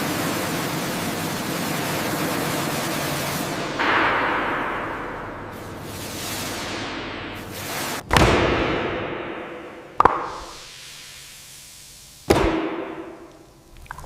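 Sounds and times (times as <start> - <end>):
heavy impacts with ringing rumble: 3.6 - 6.0
rushing hiss: 10.3 - 13.5.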